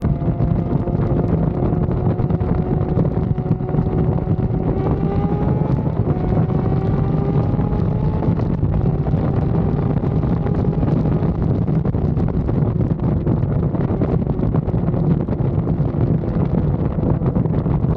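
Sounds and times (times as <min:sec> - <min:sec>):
motorcycle engine shifting up: 0:00.0 - 0:12.0
wind buffeting microphone: 0:00.0 - 0:17.9.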